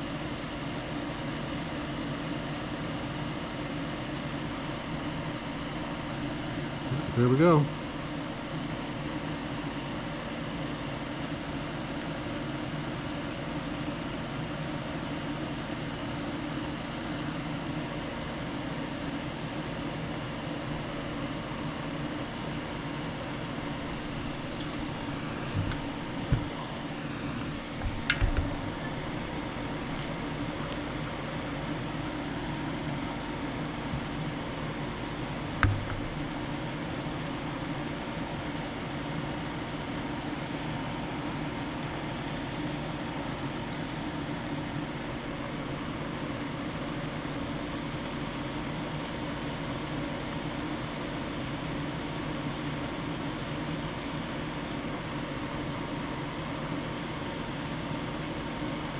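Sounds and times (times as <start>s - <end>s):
machine hum: 0.0s - 50.3s
light knocks: 23.9s - 26.9s, 35.6s - 36.2s.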